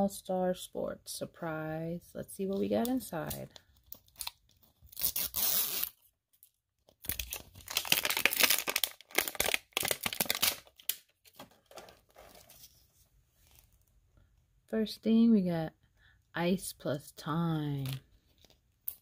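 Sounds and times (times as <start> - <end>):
toy wrapping tearing and crinkling: 2.6 - 12.7, 17.8 - 19.0.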